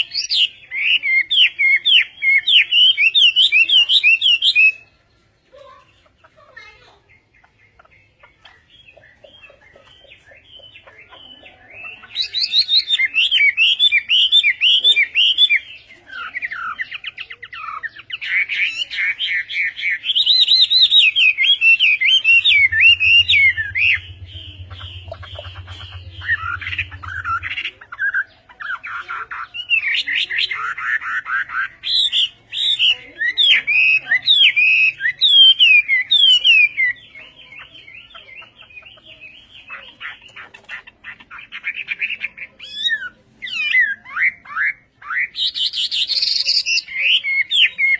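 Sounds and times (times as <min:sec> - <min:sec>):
songbird warbling: 0:05.6 - 0:47.9
low hum: 0:21.4 - 0:29.0.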